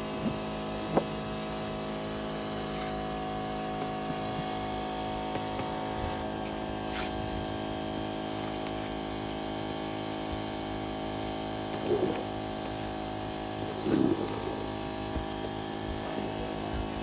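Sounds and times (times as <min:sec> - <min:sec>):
motor humming: 0:08.4 - 0:17.0.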